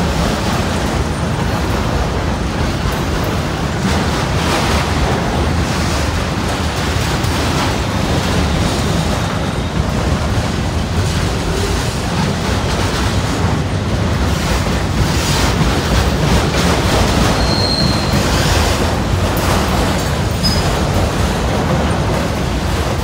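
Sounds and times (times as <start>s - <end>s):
freight train rumbling past: 0.0s - 23.0s.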